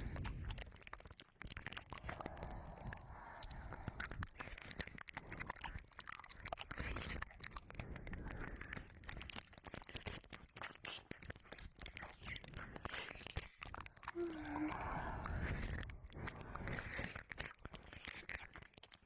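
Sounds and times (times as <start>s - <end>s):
wet mouth clicks and smacks: 0.0s - 19.0s.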